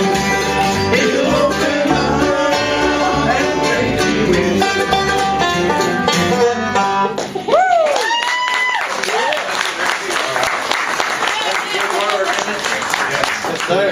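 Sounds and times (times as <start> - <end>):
banjo picking: 0.0 - 7.5
bass line: 0.0 - 7.8
bluegrass band playing: 0.0 - 7.8.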